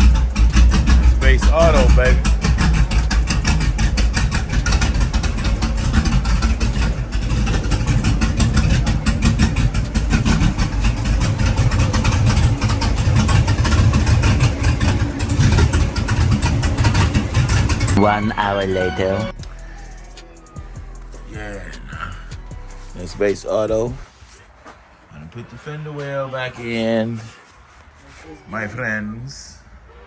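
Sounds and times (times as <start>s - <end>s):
car engine idling: 0.0s - 24.6s.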